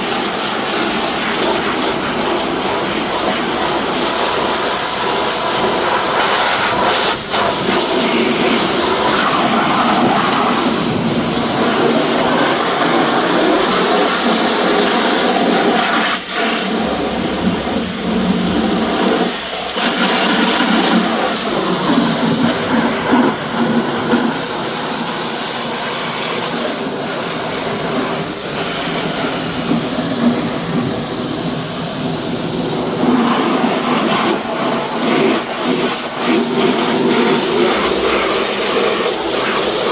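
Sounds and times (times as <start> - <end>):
car wash equipment hissing: 0.0 - 39.9.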